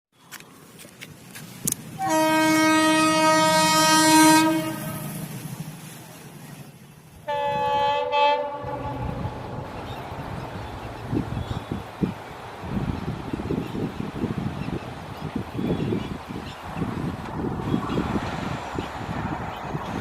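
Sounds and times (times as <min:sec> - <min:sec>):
train rumbling: 0:00.2 - 0:20.0
locomotive horn blasts: 0:02.0 - 0:05.3, 0:07.2 - 0:09.6.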